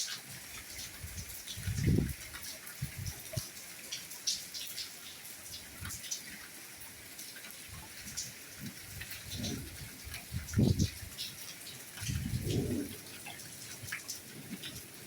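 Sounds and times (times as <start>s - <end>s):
soft rain hiss: 0.0s - 15.0s.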